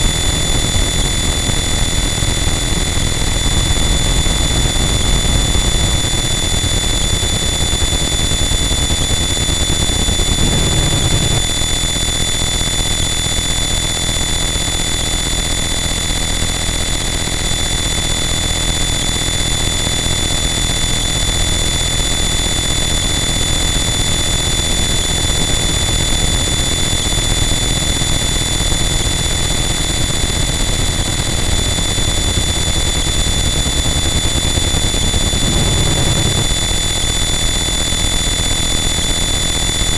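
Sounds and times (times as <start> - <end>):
high-pitched whine tones: 0.0 - 15.6, 16.8 - 39.9
dense distorted noise: 10.1 - 11.5, 33.3 - 37.2
heavy low rumble: 34.9 - 36.8.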